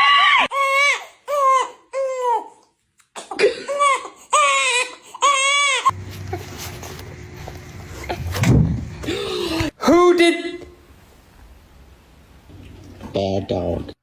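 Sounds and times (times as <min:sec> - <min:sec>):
steady low hum: 0:05.9 - 0:09.8.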